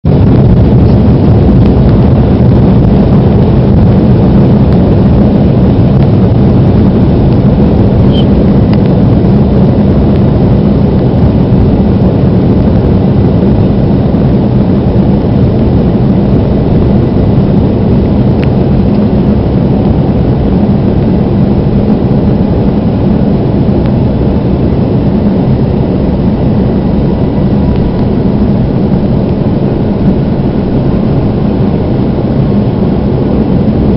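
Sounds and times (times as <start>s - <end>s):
aircraft engines roaring in cabin: 0.0s - 33.9s.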